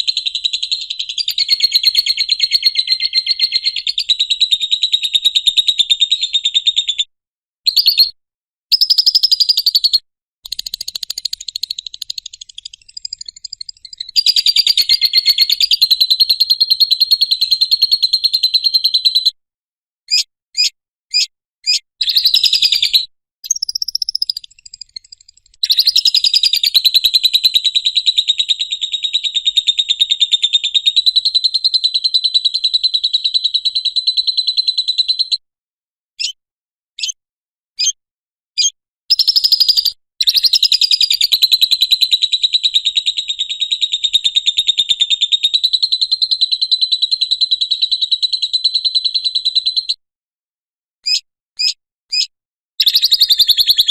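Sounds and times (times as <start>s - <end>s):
short bird chirps: 0.0s - 5.2s, 7.7s - 19.4s, 20.1s - 31.0s, 36.2s - 36.4s, 37.0s - 37.2s, 38.6s - 41.4s, 51.0s - 53.9s
bird rapid high chattering: 0.0s - 5.6s, 8.7s - 19.3s, 20.1s - 35.3s, 38.6s - 49.9s, 51.0s - 53.9s.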